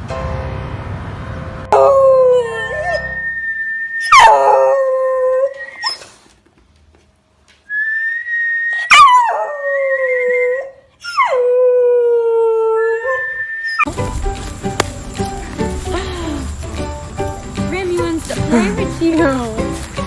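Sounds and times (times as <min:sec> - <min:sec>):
steady high whistling tone: 0:03.0 - 0:04.1
dog howling: 0:08.8 - 0:13.4.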